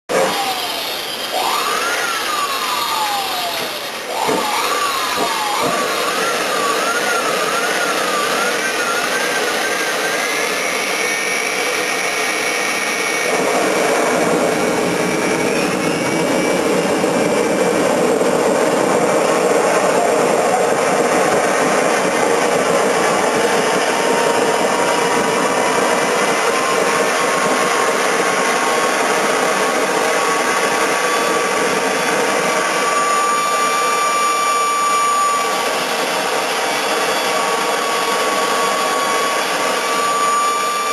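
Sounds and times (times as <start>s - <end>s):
model turbojet engine roaring: 0.1s - 40.9s.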